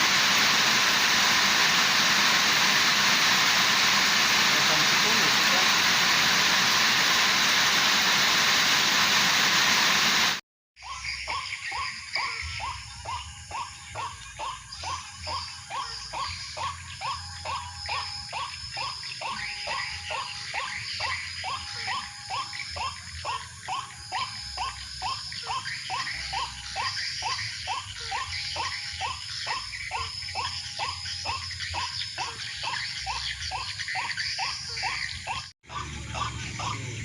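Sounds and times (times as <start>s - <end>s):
waterhen calling: 0.0s - 10.3s
steady high hiss: 0.0s - 10.4s.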